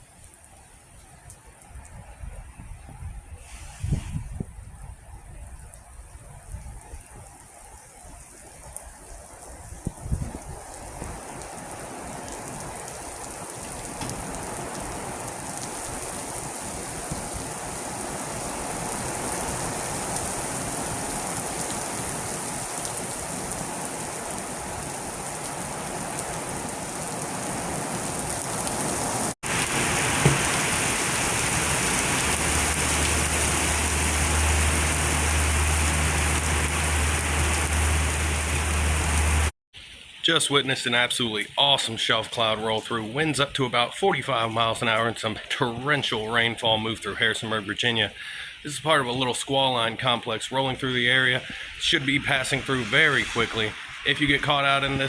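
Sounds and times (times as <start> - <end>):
heavy rain pouring: 6.4 - 40.2, 50.7 - 55.0.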